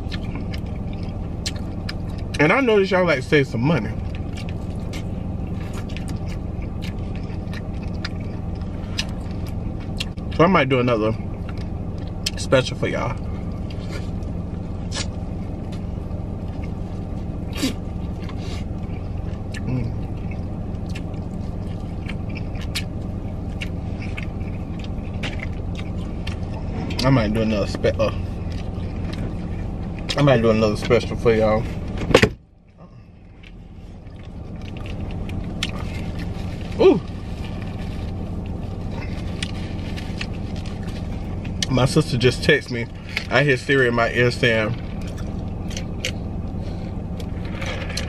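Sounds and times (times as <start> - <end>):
chewing and wet mouth clicks: 0.0 - 2.4, 5.7 - 10.3, 19.2 - 27.0
chewing with wet smacks: 0.0 - 2.9, 4.0 - 10.4, 11.1 - 31.1, 32.6 - 48.0
low car cabin hum: 0.0 - 48.0.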